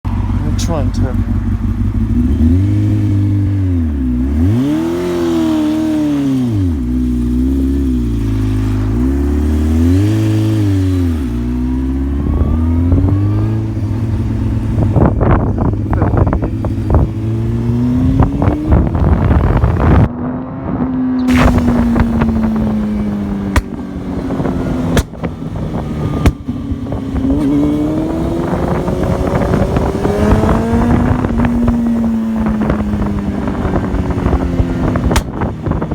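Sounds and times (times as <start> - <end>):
motorcycle engine revving: 0.1 - 35.9
wind buffeting microphone: 10.3 - 35.9.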